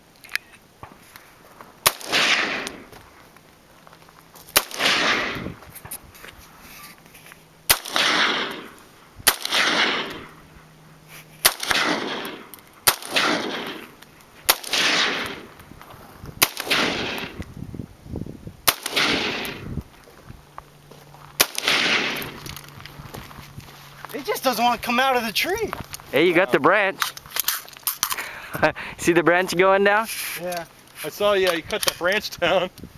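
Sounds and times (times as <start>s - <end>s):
rifle shots with echo: 1.8s - 2.9s, 4.6s - 5.6s, 7.7s - 10.4s, 11.4s - 15.6s, 16.4s - 17.4s, 18.6s - 19.7s, 21.4s - 22.5s.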